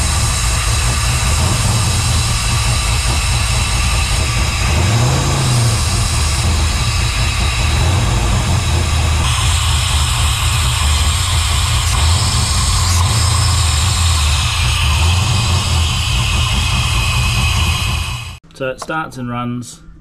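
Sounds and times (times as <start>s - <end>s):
car engine idling: 0.0s - 18.4s
idle stepper motor noise: 0.0s - 18.4s.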